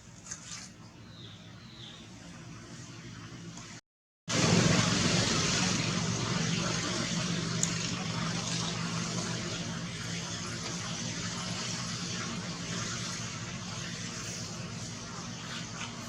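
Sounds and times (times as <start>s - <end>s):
vehicle engine humming: 4.3s - 16.0s.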